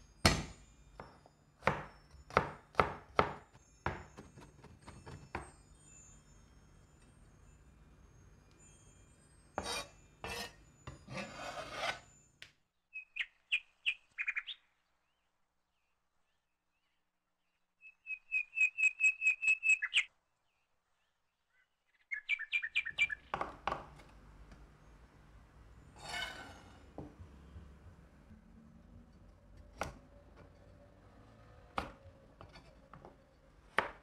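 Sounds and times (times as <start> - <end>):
knife chopping with metallic ring: 0.2 - 5.6, 9.6 - 12.0
cleaver scraping cutting board: 9.6 - 12.1, 26.0 - 27.1.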